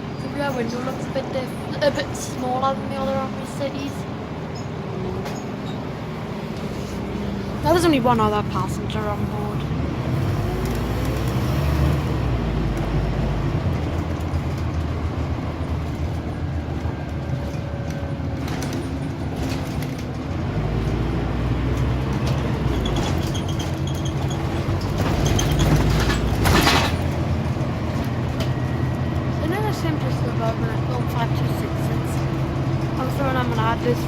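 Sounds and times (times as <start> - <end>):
bus body rattling: 0.0 - 34.0
bus diesel engine: 0.0 - 34.0.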